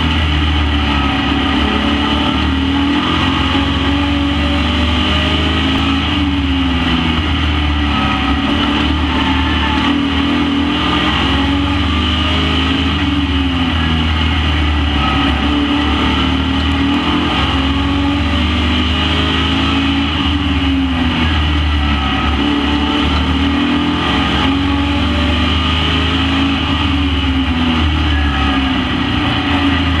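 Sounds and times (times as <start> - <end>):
racing truck engines revving: 0.0 - 30.0.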